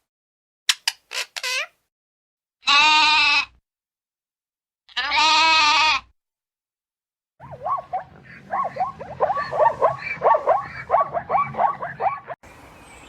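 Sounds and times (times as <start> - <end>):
sheep bleating: 2.6 - 3.6, 4.9 - 6.1
animal rapid sliding calls: 7.4 - 12.4.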